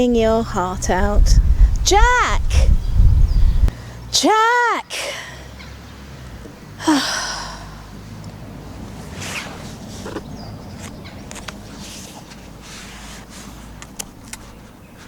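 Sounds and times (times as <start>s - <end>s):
faint breaths: 3.7s - 4.2s
woman sighing: 6.8s - 7.8s
small rustles: 8.8s - 15.0s.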